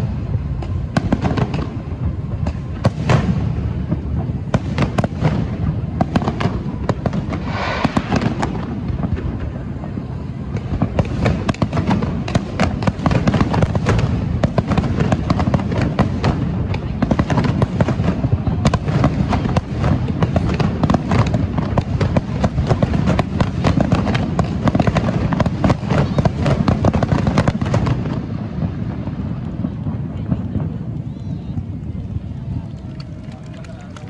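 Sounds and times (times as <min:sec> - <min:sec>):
fireworks crackling and popping: 0:00.0 - 0:34.0
low rumble: 0:07.3 - 0:10.2.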